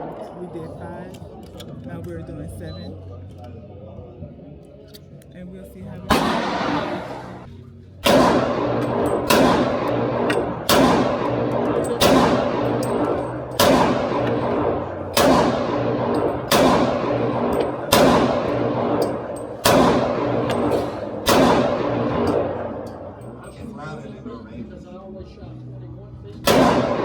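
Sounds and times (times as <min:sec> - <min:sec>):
pistol shots with echo: 0:06.1 - 0:23.6, 0:26.4 - 0:27.0.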